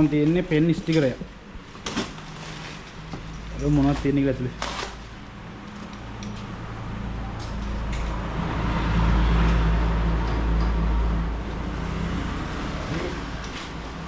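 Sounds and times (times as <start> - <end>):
vehicle passing with low rumble: 5.2 - 14.0.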